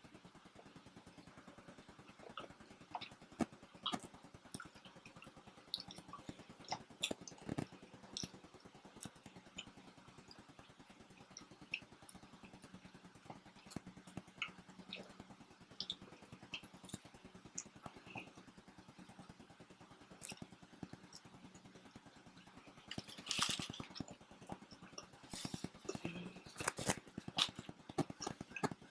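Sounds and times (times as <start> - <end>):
faint steady hum: 0.0 - 28.9
small clicks and crackles: 0.0 - 28.9
chewing noises: 2.2 - 8.4, 20.1 - 20.5, 22.8 - 28.9.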